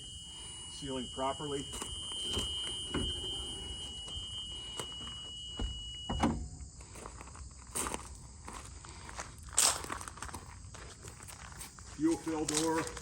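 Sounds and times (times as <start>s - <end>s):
door alarm buzzer: 0.0s - 6.5s
door shutting clunk: 1.7s - 6.6s
footsteps: 6.8s - 13.0s.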